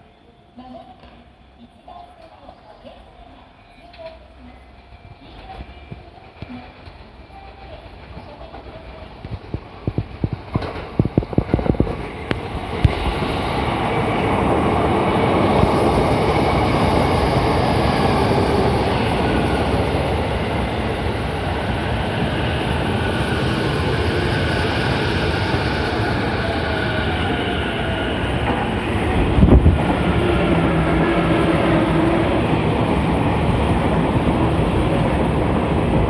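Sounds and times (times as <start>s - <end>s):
electric train running noise: 5.2s - 36.0s
train wheels clacking over rail joints: 8.4s - 12.0s.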